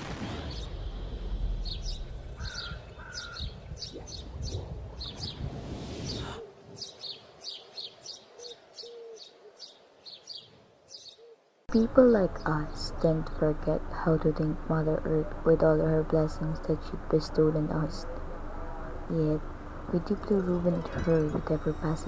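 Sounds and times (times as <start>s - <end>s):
low rumbling noise: 0.0s - 6.4s, 11.7s - 22.0s
birds chirping: 1.6s - 22.0s.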